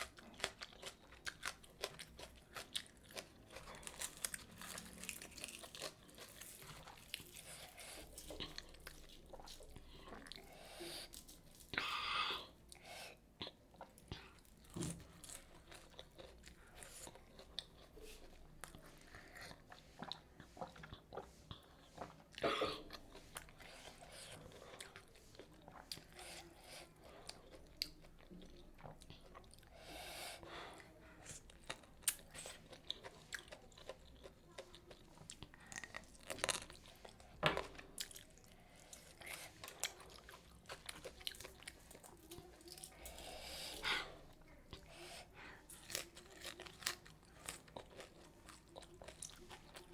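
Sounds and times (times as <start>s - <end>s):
person chewing and biting food: 0.0s - 10.5s, 31.6s - 43.8s, 45.7s - 49.9s
crisp crunches: 3.5s - 9.7s.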